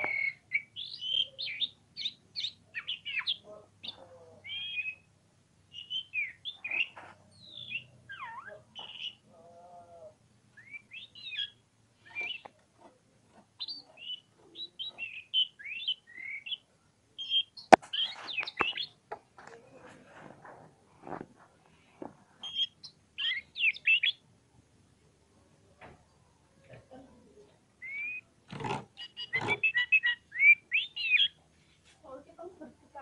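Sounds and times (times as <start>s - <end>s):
bird singing chirps and trills: 0.0s - 5.1s, 5.7s - 9.3s, 10.6s - 12.5s, 13.6s - 19.0s, 22.4s - 24.2s, 27.8s - 28.3s, 28.9s - 31.4s.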